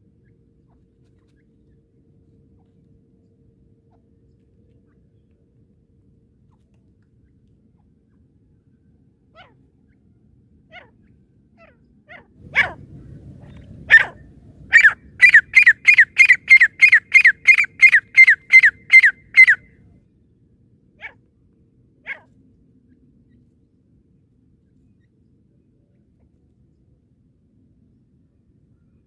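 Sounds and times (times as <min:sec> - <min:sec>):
francolin calling: 0:13.9 - 0:19.7.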